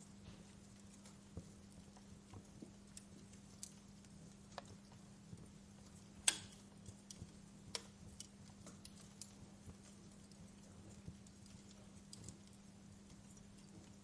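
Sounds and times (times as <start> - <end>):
wood fire popping and snapping: 0.0 - 14.0.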